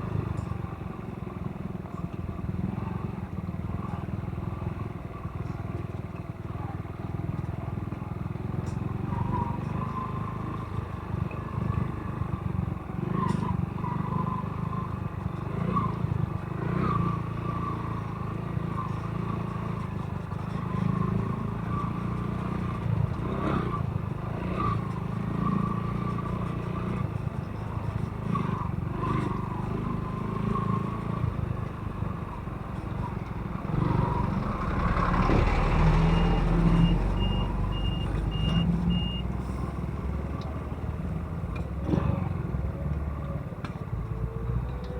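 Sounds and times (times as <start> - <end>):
motorcycle engine rumble: 0.0 - 44.9
heavy machinery rumble: 18.0 - 43.1
reversing alarm beeping: 36.1 - 39.3.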